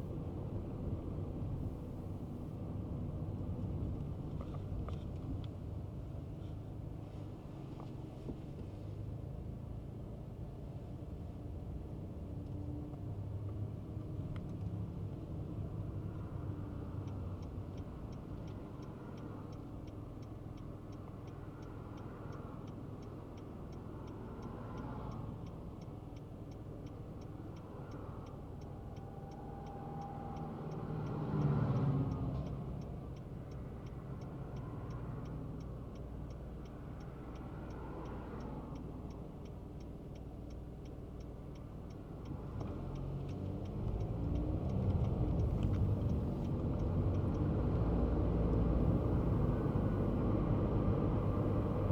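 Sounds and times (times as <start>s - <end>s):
car engine and road noise: 0.0s - 51.9s
turn signal ticking: 0.0s - 51.9s
passing vehicle: 10.6s - 51.9s.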